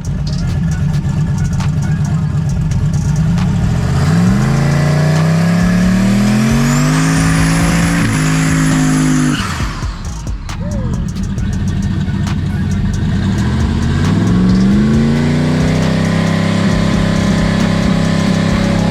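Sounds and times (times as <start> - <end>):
drag racing car engine accelerating: 0.0 - 10.1, 11.3 - 18.9
high engine whine: 0.0 - 18.9.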